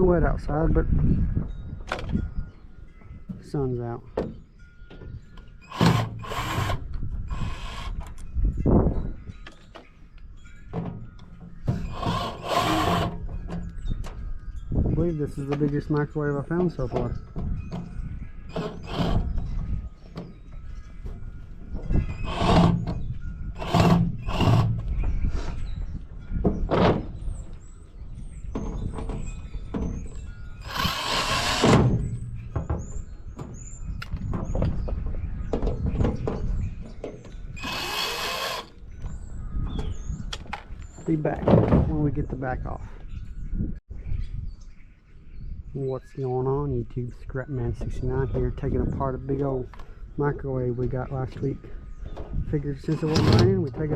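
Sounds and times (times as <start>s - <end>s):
hand tools clattering on metal casing: 3.0s - 8.7s, 9.3s - 14.3s, 14.9s - 25.2s, 52.1s - 53.9s
sheet metal rasping scrapes: 11.7s - 13.2s, 30.6s - 32.1s, 52.8s - 53.7s.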